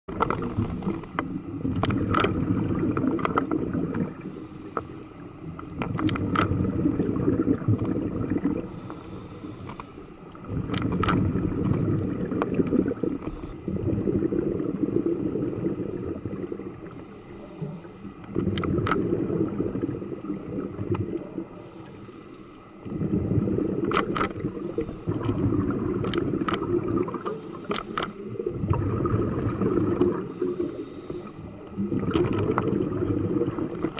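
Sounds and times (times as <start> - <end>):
regulator hissing inhale: 0.4 - 1.3, 4.2 - 5.3, 8.6 - 10.2, 13.2 - 13.6, 16.8 - 18.2, 21.5 - 22.8, 24.5 - 25.2, 27.2 - 28.3, 30.2 - 31.6
bubbling exhaust: 10.5 - 17.6, 22.8 - 27.7, 28.3 - 33.9.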